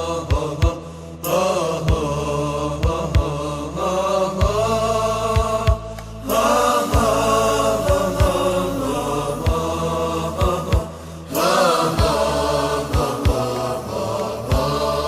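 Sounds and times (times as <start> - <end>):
group chanting a song: 0.0 - 15.0.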